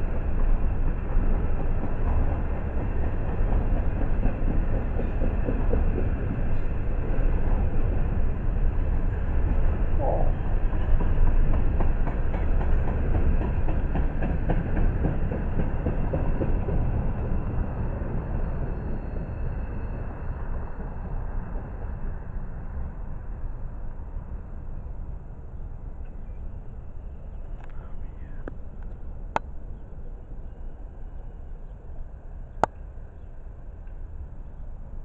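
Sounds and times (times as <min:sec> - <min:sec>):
steel wheels rumbling on rail: 0:00.0 - 0:25.8.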